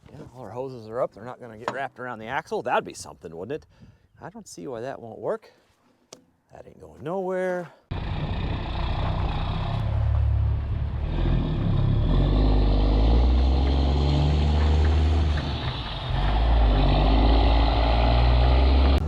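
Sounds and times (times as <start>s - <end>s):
truck diesel engine under load: 7.9s - 19.0s.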